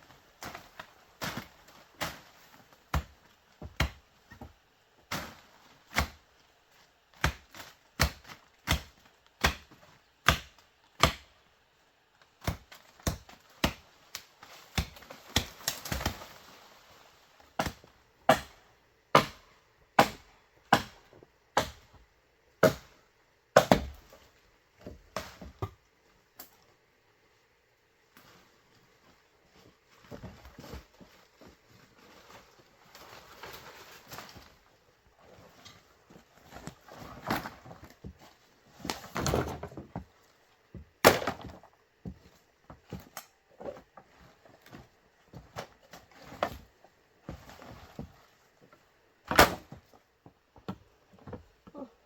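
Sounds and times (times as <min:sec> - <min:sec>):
tool striking bamboo: 0:08.0 - 0:11.3, 0:17.6 - 0:19.4, 0:20.0 - 0:21.0
scraping rustle: 0:28.2 - 0:40.3.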